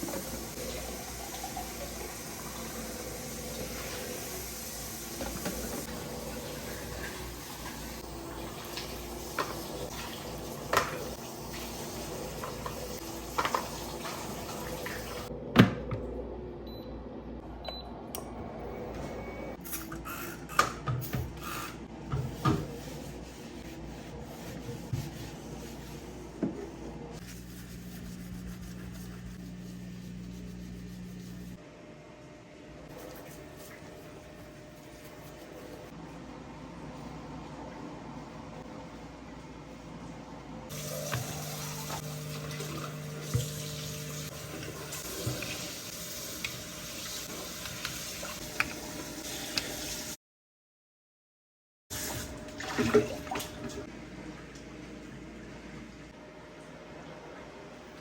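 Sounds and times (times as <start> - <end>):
low steady hum: 22.2 - 42.9
tap water running into sink: 40.7 - 50.0.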